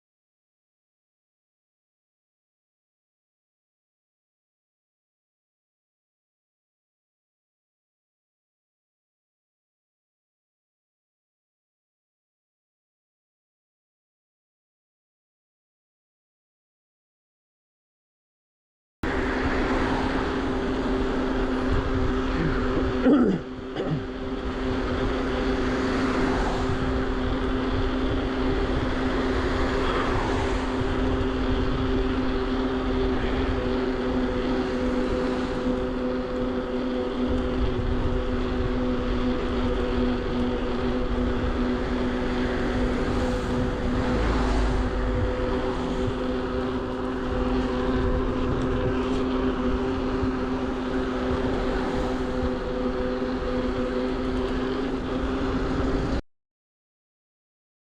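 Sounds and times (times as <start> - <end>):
wind and tyre rumble: 19.0 - 56.2
electric bike motor whining: 19.1 - 56.2.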